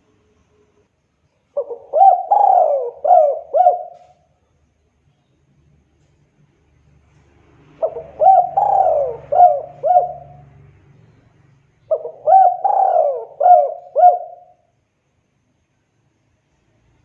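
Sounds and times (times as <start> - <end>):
dove cooing: 1.6 - 4.2, 7.8 - 10.6, 11.9 - 14.6.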